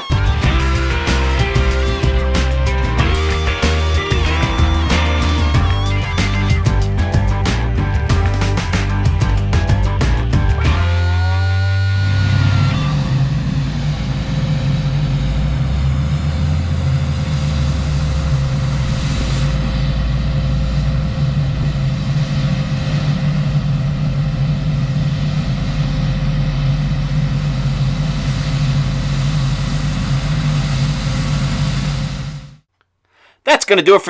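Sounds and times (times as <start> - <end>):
thin steady whine: 0.0 - 11.0
diesel engine hum: 0.0 - 32.4.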